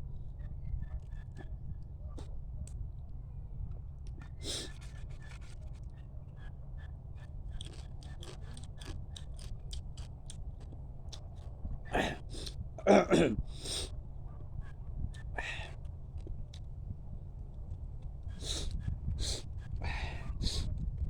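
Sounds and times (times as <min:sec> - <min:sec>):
crab shell cracking and chewing: 0:07.5 - 0:11.5.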